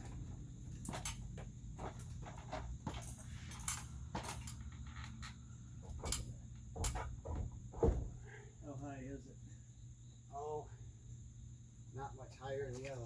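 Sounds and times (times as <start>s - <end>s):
lumber knocking and tapping: 6.7s - 8.2s.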